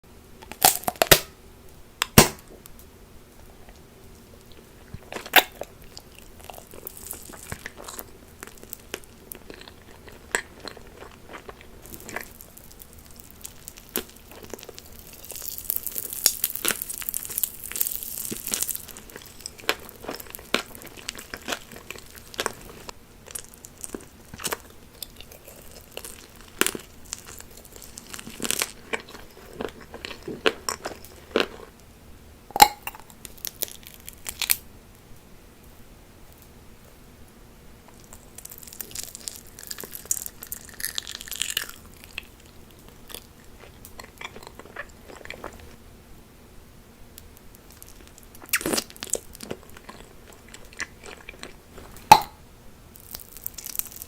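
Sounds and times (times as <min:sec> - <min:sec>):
crunchy bites: 0:00.4 - 0:01.4, 0:02.0 - 0:02.6, 0:04.9 - 0:31.8, 0:32.6 - 0:34.6, 0:37.9 - 0:42.4, 0:47.6 - 0:52.4
chewing: 0:03.4 - 0:31.8, 0:37.9 - 0:45.8, 0:47.6 - 0:52.4.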